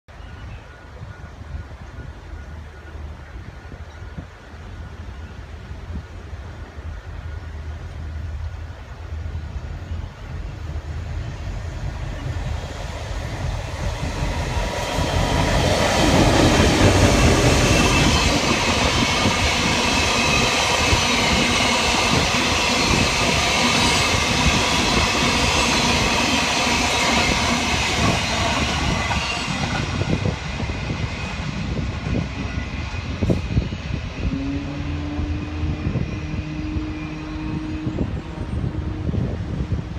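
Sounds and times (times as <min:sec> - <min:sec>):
diesel locomotives passing: 0:00.1 - 0:39.9.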